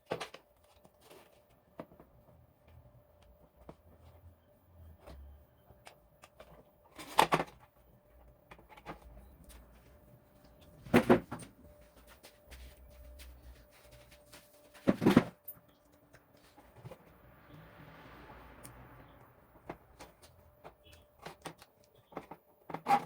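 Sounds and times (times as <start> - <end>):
faint steady hum: 0.1 - 22.9
handling noises on hard parts: 8.4 - 17.2, 19.6 - 23.0.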